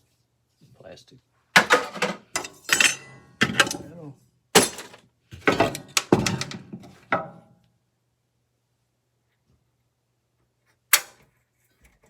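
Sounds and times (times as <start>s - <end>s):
metal parts clattering onto pile: 1.6s - 3.9s, 4.6s - 7.3s.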